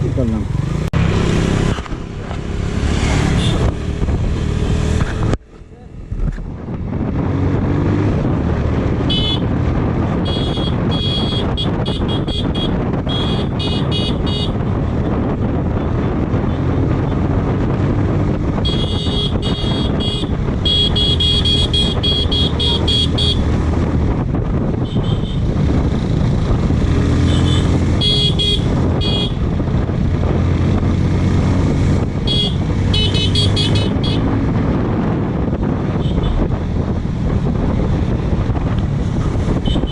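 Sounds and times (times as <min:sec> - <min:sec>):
motorcycle engine: 0:00.0 - 0:39.9
wind noise: 0:00.0 - 0:39.9
motorcycle horn tooting: 0:03.4 - 0:03.7, 0:09.1 - 0:09.5, 0:10.2 - 0:14.6, 0:18.6 - 0:23.4, 0:24.8 - 0:25.5, 0:27.2 - 0:29.4, 0:32.2 - 0:34.2, 0:36.0 - 0:36.4, 0:39.6 - 0:39.9.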